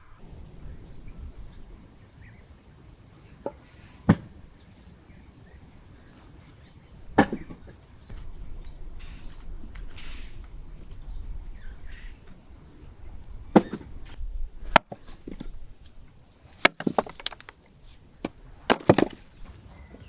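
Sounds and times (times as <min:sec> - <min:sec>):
wooden knocks and cracks: 0:16.6 - 0:17.6, 0:18.2 - 0:19.6.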